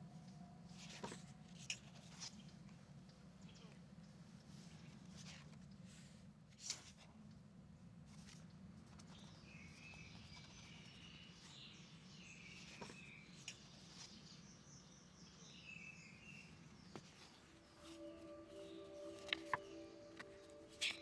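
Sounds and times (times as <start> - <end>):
steady low hum: 0.0 - 21.0
birds chirping: 9.1 - 21.0.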